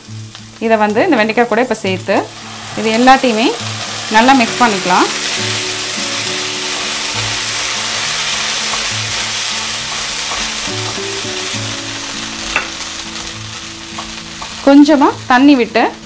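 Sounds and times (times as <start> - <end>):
vegetables sizzling in oil: 0.0 - 16.0
spatula stirring in a pan: 2.4 - 11.5.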